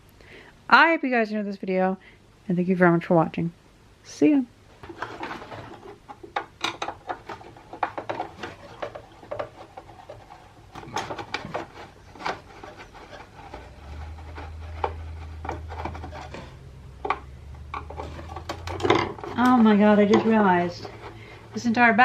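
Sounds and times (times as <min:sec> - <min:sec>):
low steady hum: 0:00.0 - 0:22.0
plastic parts clicking and rubbing: 0:04.8 - 0:22.0.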